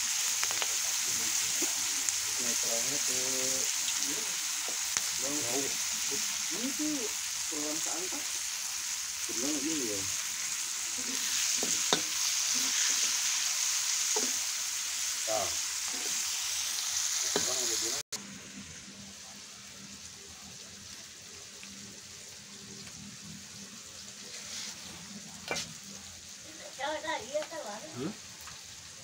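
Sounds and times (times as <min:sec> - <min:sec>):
food sizzling in hot oil: 0:00.0 - 0:29.0
steady hiss: 0:00.0 - 0:29.0
metal spatula scraping a pan: 0:10.9 - 0:14.4, 0:25.5 - 0:25.8.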